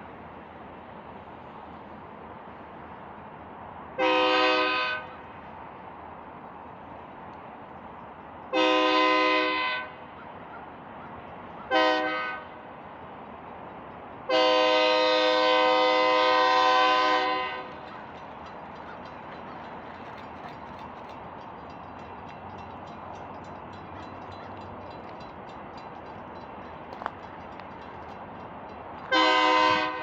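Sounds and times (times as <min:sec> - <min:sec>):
rumble of moving train: 0:00.0 - 0:30.0
locomotive air horn blasts: 0:04.0 - 0:05.4, 0:08.5 - 0:10.0, 0:11.7 - 0:12.7, 0:14.3 - 0:17.9, 0:29.1 - 0:30.0.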